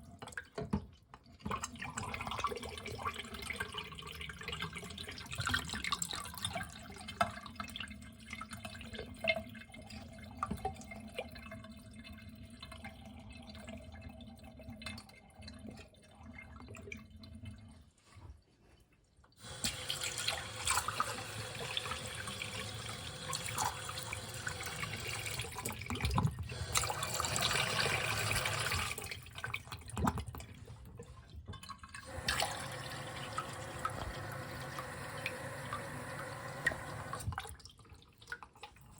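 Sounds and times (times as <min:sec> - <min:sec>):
water trickling and dripping: 0:19.3 - 0:38.9
water running steadily: 0:19.4 - 0:38.9.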